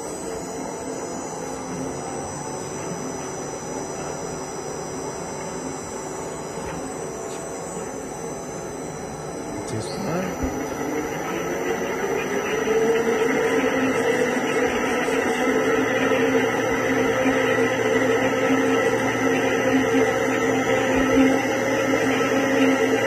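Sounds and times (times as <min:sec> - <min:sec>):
electric motor hum and whine: 0:00.0 - 0:23.0.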